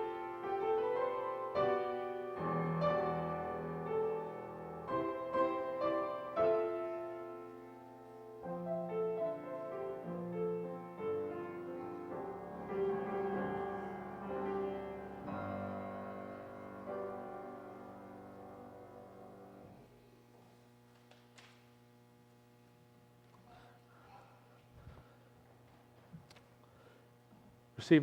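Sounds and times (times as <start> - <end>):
piano playing slow chords: 0.0 - 20.2.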